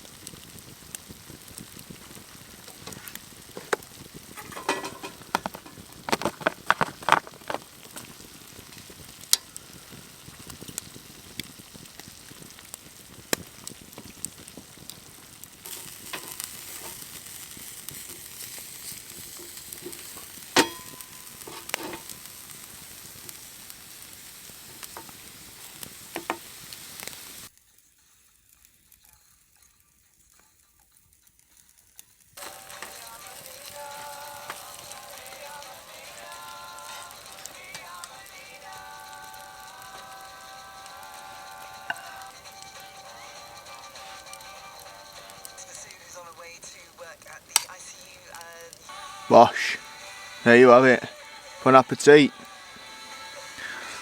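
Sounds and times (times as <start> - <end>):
food sizzling in a pan: 0.0 - 54.0
utensil knocking against pan: 3.6 - 7.6.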